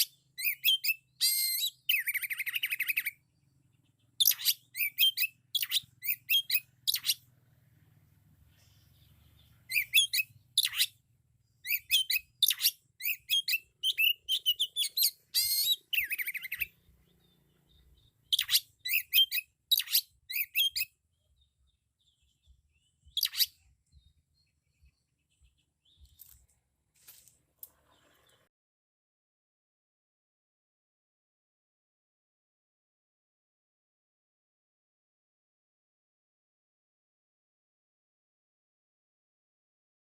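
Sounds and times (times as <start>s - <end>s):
bird singing warbling song: 0.0s - 28.5s.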